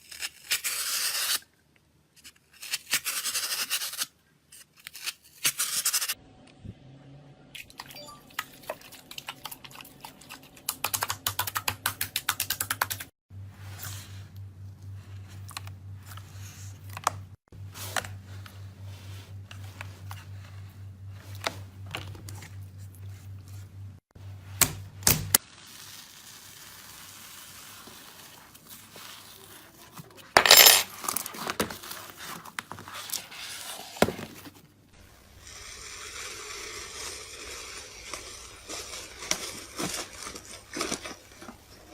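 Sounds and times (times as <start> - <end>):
steady low hum: 6.2 - 11.7, 13.3 - 25.1.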